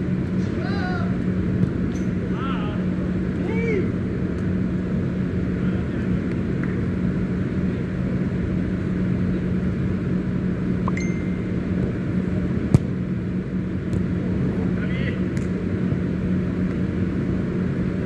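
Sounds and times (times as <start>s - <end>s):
constant low hum: 0.0s - 18.0s
short high beep: 10.9s - 11.6s.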